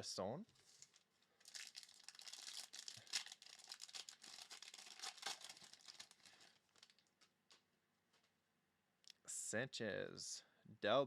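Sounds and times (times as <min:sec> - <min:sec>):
wrapper crinkling and tearing: 0:00.6 - 0:07.6.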